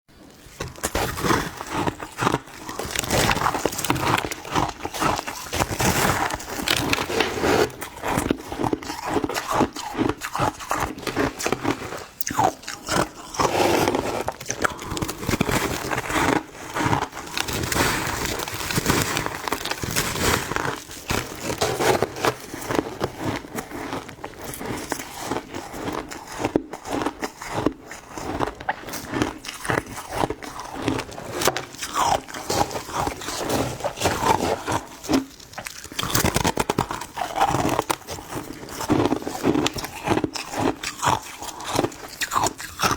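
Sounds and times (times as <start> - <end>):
person crunching ice: 0.5 - 42.9.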